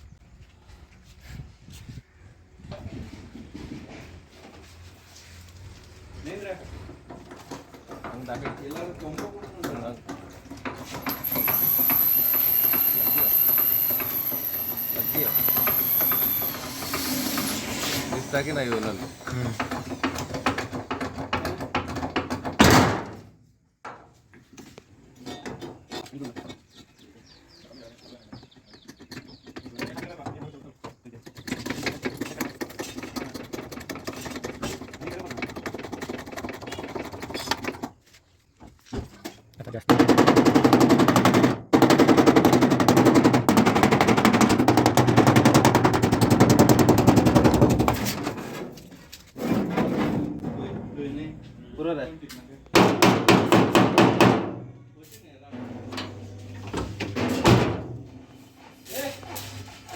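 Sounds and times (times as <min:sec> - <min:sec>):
power impact tool hammering: 0:11.0 - 0:21.0, 0:52.8 - 0:54.6
knocks on car bodywork: 0:52.8 - 0:54.6.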